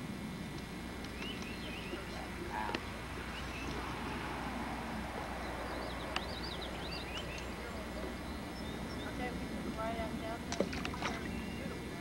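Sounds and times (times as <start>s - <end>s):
outdoor background noise: 0.0s - 12.0s
bird chirping: 1.1s - 4.1s, 5.4s - 9.4s, 10.6s - 11.8s.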